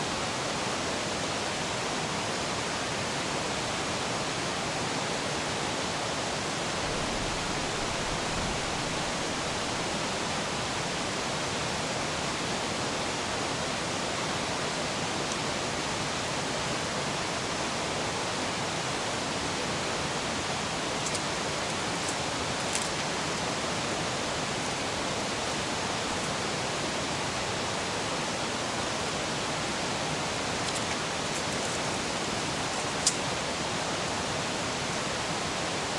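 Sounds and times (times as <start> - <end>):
river rushing: 0.0 - 35.9.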